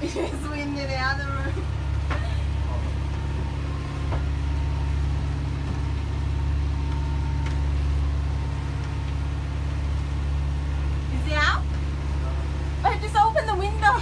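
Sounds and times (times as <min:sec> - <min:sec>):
boat diesel engine droning: 0:00.0 - 0:14.0.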